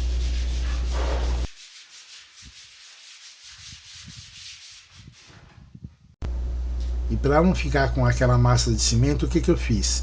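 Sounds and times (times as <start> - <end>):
sanding wall abrasive rubbing: 0.0 - 5.8
steady low hum: 6.2 - 10.0.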